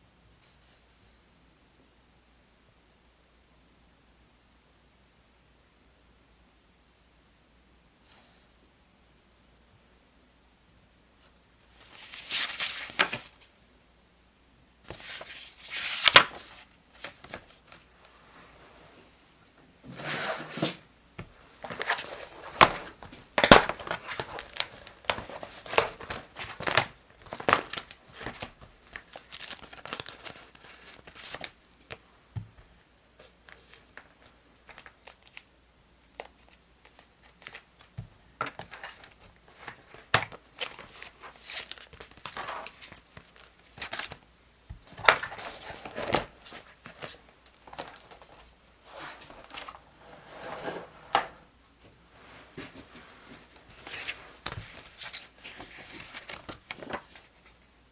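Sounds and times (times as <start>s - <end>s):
paper crinkling and rustling: 11.7s - 13.5s, 14.9s - 18.0s, 21.5s - 32.0s, 36.2s - 49.8s, 52.6s - 57.6s.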